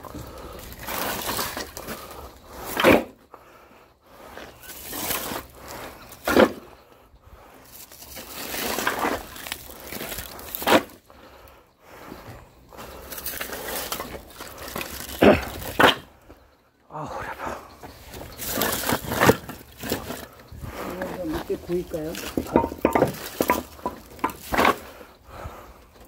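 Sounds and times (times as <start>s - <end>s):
firewood rustling and scraping: 0.0s - 26.0s
hard wooden impacts: 22.1s - 25.5s.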